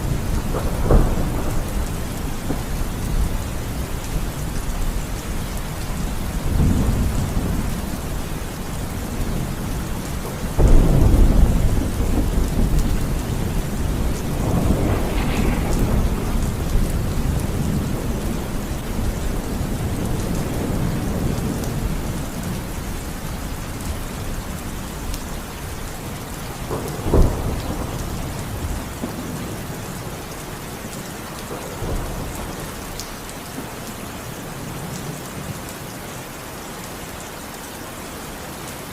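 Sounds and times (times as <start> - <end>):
sharp thunder crack: 0.0 - 3.4, 10.6 - 21.3, 26.6 - 29.3
rolling thunder: 0.0 - 33.7
heavy rain: 0.0 - 38.9.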